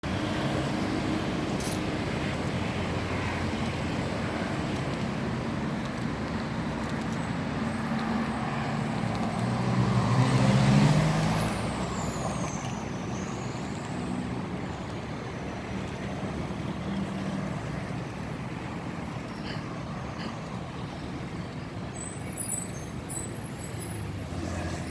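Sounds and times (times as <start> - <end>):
steady traffic noise: 0.0 - 24.9
car engine passing by: 8.1 - 12.7.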